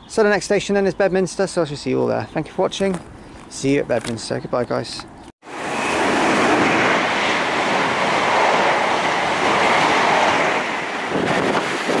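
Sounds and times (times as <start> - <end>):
train passing at speed: 5.4 - 12.0.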